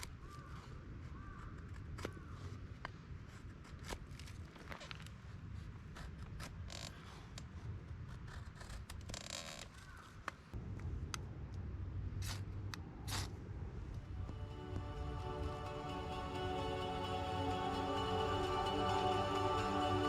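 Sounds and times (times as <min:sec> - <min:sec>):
low background rumble: 0:10.5 - 0:20.0.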